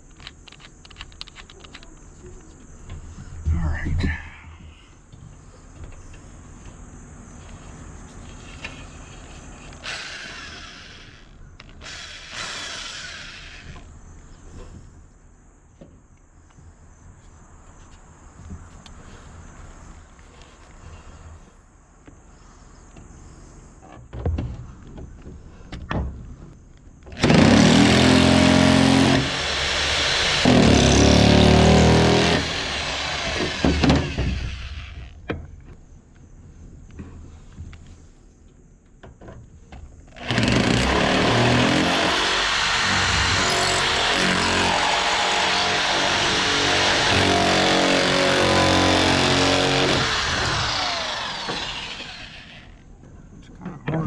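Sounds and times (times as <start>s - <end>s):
power nibbler cutting: 9.8s - 13.9s, 40.2s - 52.8s.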